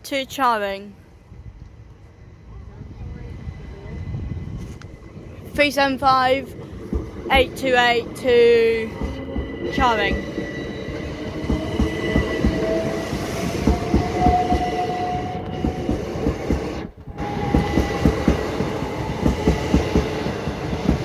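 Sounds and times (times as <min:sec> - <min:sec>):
train wheels clattering over rails: 0:06.7 - 0:21.0.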